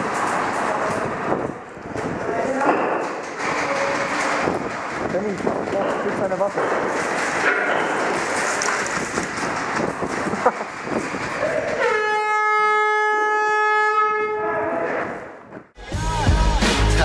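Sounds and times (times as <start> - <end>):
long horn blast: 11.8 - 14.9.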